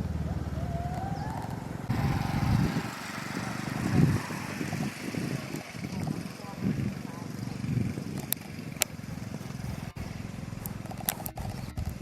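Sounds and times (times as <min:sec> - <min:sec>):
low rumbles: 0:00.0 - 0:12.0
outdoor noise: 0:00.0 - 0:12.0
vehicle engine idling: 0:00.0 - 0:12.0
thin rising whistle: 0:00.6 - 0:05.5.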